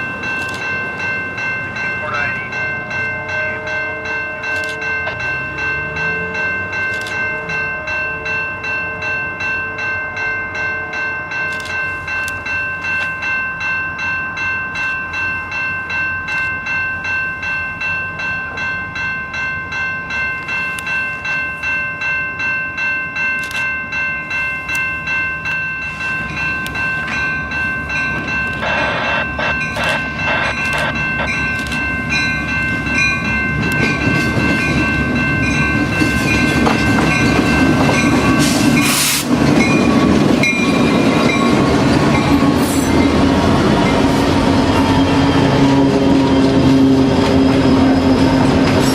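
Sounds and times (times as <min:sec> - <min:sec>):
crossing bell ringing: 0:00.0 - 0:48.9
locomotive rumble: 0:25.5 - 0:48.9
train wheels clattering on rail: 0:25.5 - 0:48.9.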